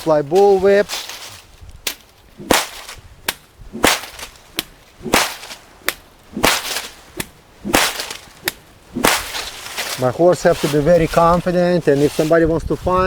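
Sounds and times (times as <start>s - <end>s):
bullwhip cracking: 1.9s - 10.8s.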